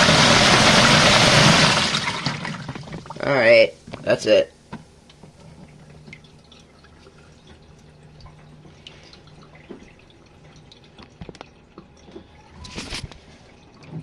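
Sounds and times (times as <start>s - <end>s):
low steady hum: 0.0s - 14.0s
water dripping and trickling: 5.1s - 14.0s.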